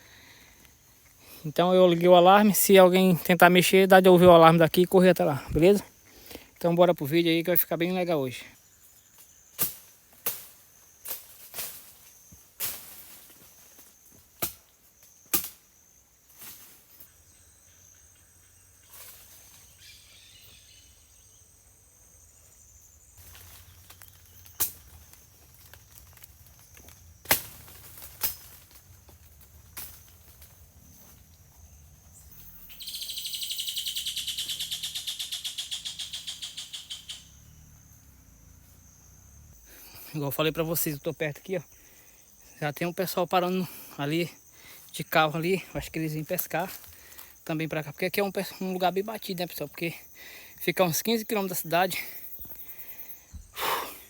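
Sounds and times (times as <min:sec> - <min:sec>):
high insect drone: 0:00.0 - 0:54.0
insect pulsing buzz: 0:08.6 - 0:42.6, 0:52.2 - 0:54.0.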